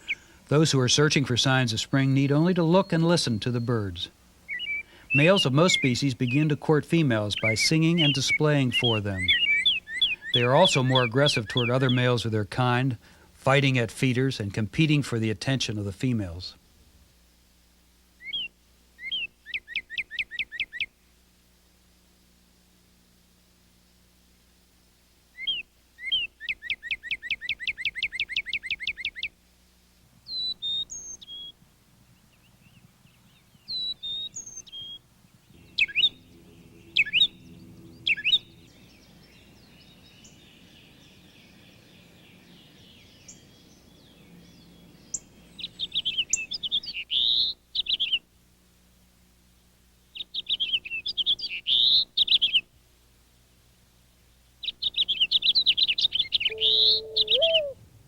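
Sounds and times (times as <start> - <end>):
songbirds singing: 0.0 - 16.6, 18.2 - 21.0, 25.3 - 29.4, 30.2 - 48.3, 50.0 - 52.8, 54.2 - 57.9
rapid bird chattering: 7.4 - 12.1, 54.7 - 57.8.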